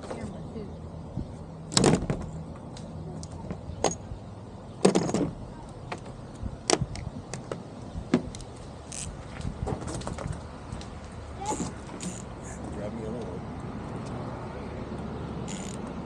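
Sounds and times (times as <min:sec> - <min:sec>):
hand tools clinking and knocking: 0:04.8 - 0:05.3.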